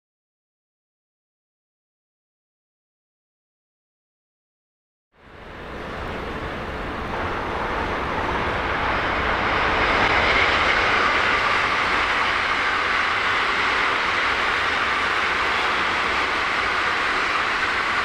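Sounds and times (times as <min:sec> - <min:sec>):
wheels rumbling on rail: 0:05.2 - 0:18.0.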